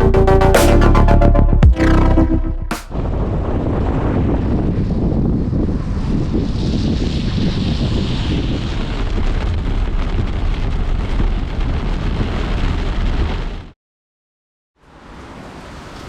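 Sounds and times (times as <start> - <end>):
wind rumbling on microphone: 2.9 - 13.8.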